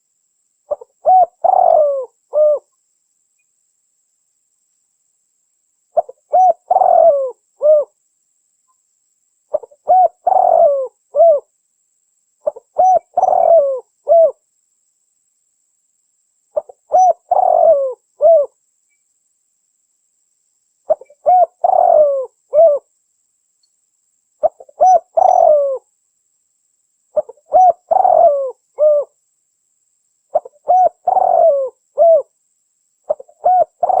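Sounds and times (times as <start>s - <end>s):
dove cooing: 0.7s - 2.7s, 6.0s - 8.0s, 9.5s - 11.5s, 12.4s - 14.4s, 16.6s - 18.6s, 20.9s - 22.9s, 24.4s - 25.9s, 27.2s - 29.2s, 30.3s - 32.3s, 33.1s - 34.0s.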